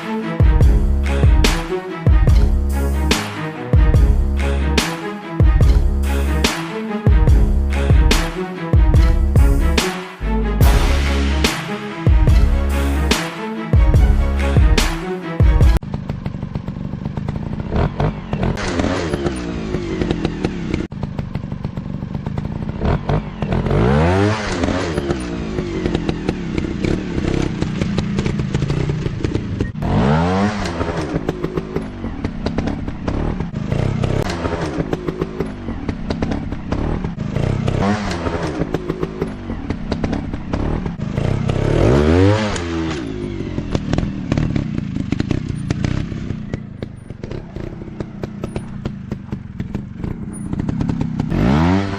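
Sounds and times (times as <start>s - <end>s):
dirt bikes revving: 15.8s - 51.9s.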